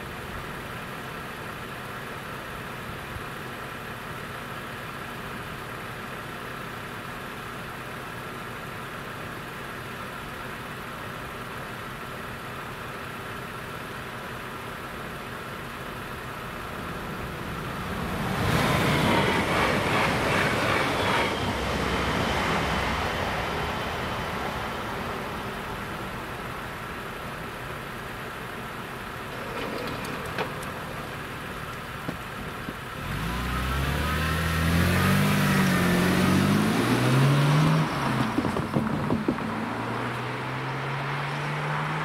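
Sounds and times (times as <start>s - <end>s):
electric train passing with whine: 16.2s - 37.0s.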